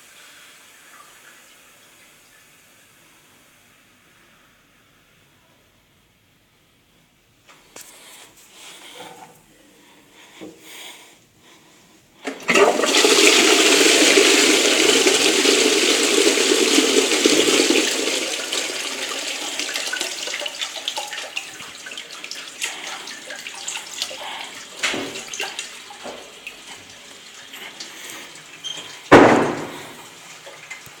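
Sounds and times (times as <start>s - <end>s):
toilet flushing: 11.4s - 31.0s
water trickling while refilling: 13.5s - 29.1s.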